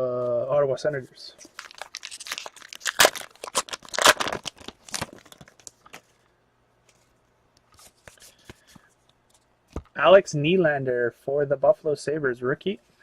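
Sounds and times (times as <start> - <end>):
wrapper crinkling and tearing: 1.4 - 6.0.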